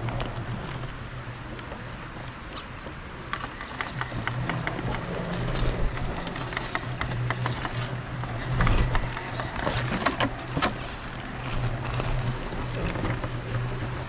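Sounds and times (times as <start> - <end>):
electric motor and gears humming: 0.0 - 14.0
tyres crunching on rocks: 4.0 - 13.8.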